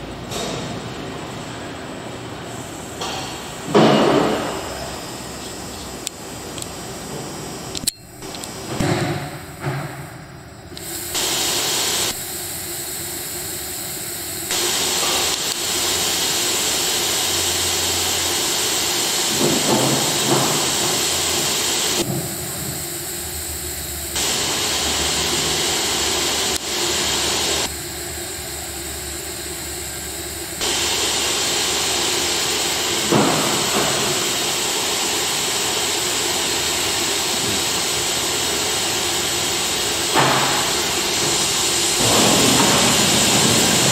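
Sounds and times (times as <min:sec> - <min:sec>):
cnc router hissing: 0:02.5 - 0:43.9.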